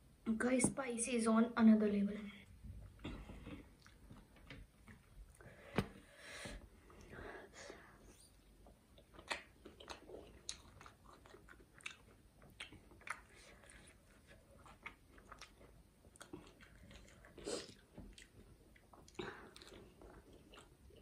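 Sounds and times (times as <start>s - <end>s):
chewing with small crunches: 2.8s - 5.7s, 8.1s - 21.0s.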